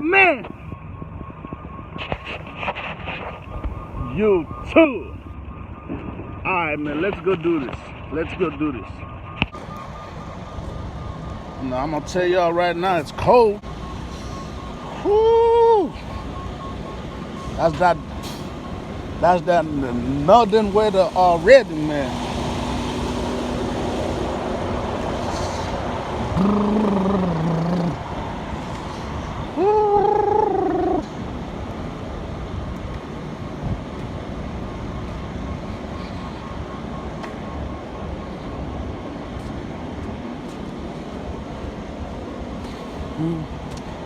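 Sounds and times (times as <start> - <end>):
traffic rumble: 0.0 - 44.0
rising high tone: 19.3 - 28.1.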